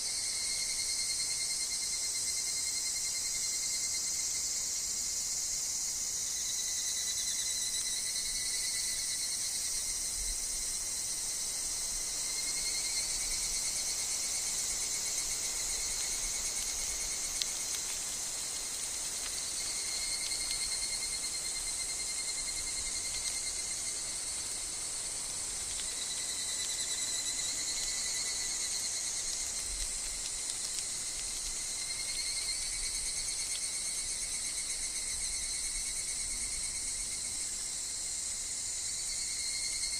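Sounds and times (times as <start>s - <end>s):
insects trilling: 0.0s - 39.9s
faint ticks: 12.0s - 37.8s.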